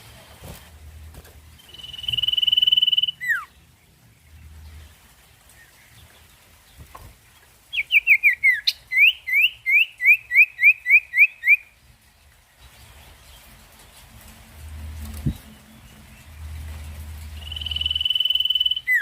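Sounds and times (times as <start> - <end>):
bird calling rising notes: 1.6 - 3.6, 7.7 - 11.7, 17.2 - 19.0.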